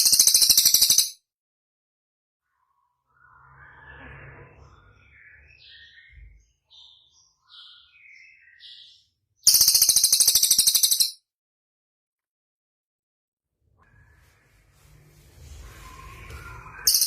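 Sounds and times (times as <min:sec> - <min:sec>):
songbird chirps and whistles: 0:02.5 - 0:11.1, 0:13.8 - 0:17.0
loud fast high bird trill: 0:09.4 - 0:11.2, 0:16.7 - 0:17.0.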